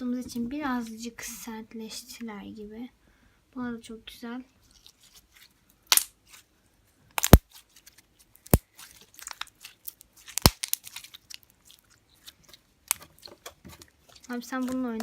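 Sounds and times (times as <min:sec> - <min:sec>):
slime air pops: 0:07.2 - 0:07.4
slime squeezed and stretched: 0:07.2 - 0:15.0
small slime crackles: 0:07.2 - 0:15.0.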